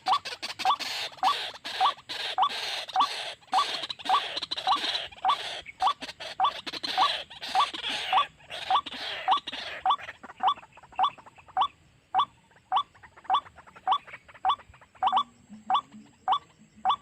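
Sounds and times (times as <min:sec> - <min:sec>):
harsh raspy bird calls: 0:00.0 - 0:17.0
waterhen kwak calls: 0:00.0 - 0:17.0.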